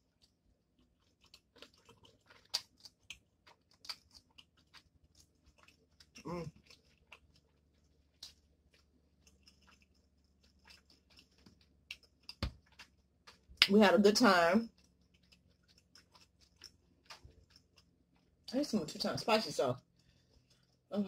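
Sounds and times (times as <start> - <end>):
person chewing noodles: 0.0 - 13.6, 14.7 - 18.5, 19.8 - 20.9
lip smacks and clicks: 0.2 - 7.6, 8.2 - 13.8.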